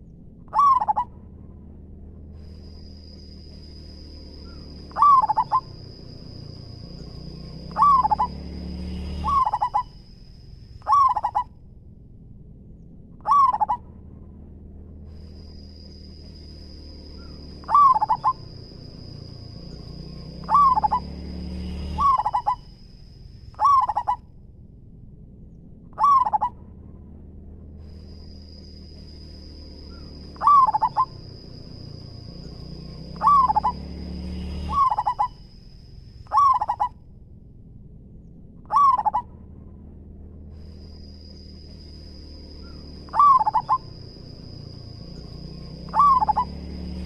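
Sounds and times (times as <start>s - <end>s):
low hum: 0.0s - 47.0s
dove cooing: 0.5s - 1.1s, 4.5s - 5.9s, 7.6s - 8.4s, 9.2s - 9.9s, 10.8s - 11.5s, 13.2s - 13.8s, 17.2s - 18.5s, 20.4s - 21.1s, 21.9s - 22.6s, 23.6s - 24.2s, 26.0s - 26.5s, 29.9s - 31.3s, 33.1s - 33.9s, 34.7s - 35.3s, 36.3s - 36.9s, 38.7s - 39.2s, 42.6s - 44.1s, 45.9s - 46.6s.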